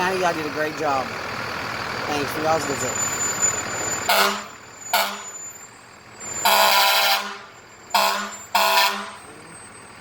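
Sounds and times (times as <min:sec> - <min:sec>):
fire engine air horn blasts: 0:04.0 - 0:05.4, 0:06.4 - 0:09.4.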